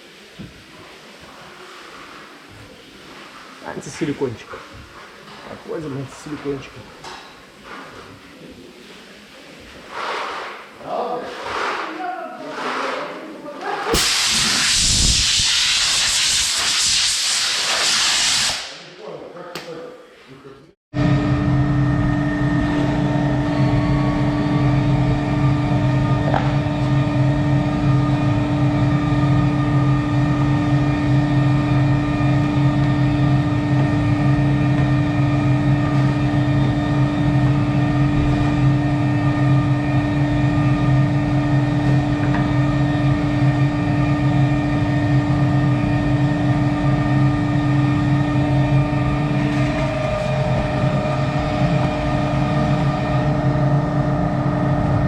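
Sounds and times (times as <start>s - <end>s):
fan or motor droning: 21.0s - 55.0s.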